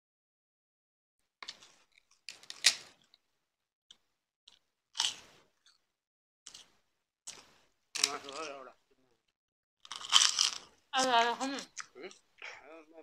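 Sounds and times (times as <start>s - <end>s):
crunchy bites and chewing: 1.4s - 3.2s, 4.5s - 5.8s, 6.5s - 8.5s, 9.8s - 10.8s.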